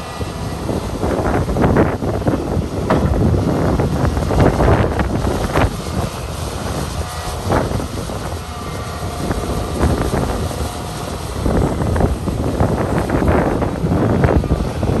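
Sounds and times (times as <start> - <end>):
heavy diesel machinery rumbling: 0.0 - 15.0
sharp knocks: 2.8 - 3.3.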